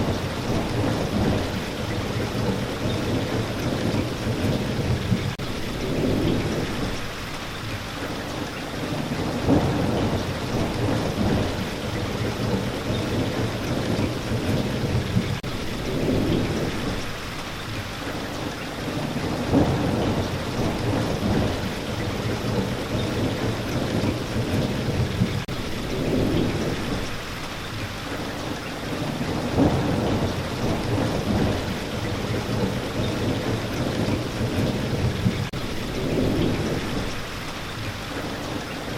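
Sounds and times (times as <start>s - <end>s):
thunder rumbling: 0.0s - 7.4s, 8.0s - 17.3s, 18.8s - 38.9s
steady rain: 0.0s - 38.9s.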